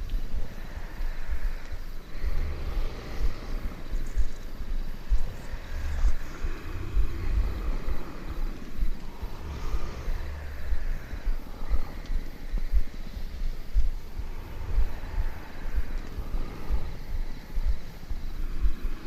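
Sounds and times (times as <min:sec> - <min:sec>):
people breathing: 0:00.0 - 0:19.0
people snoring: 0:00.0 - 0:19.0
rough low rumble: 0:00.0 - 0:19.0
soft rain: 0:00.0 - 0:19.0.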